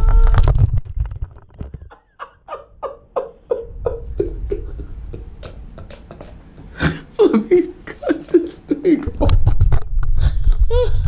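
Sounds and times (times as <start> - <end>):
person laughing: 1.7 - 9.6.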